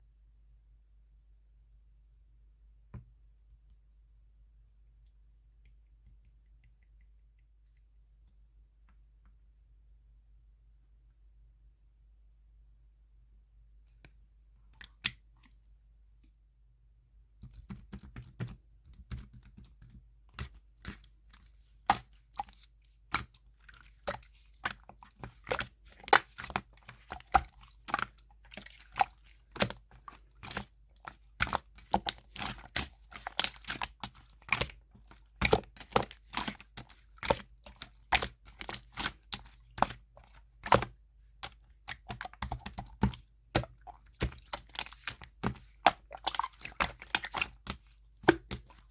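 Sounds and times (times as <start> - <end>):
slime clicking and popping: 20.4 - 48.8.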